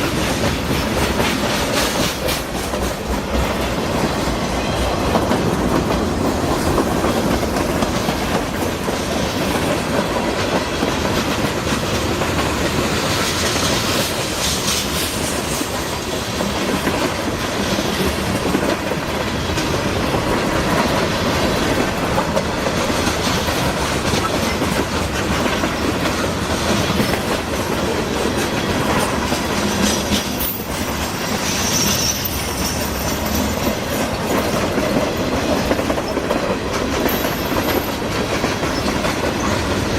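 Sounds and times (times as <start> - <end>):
train wheels clicking over rail joints: 0.0 - 39.9
high squeal: 31.3 - 33.5.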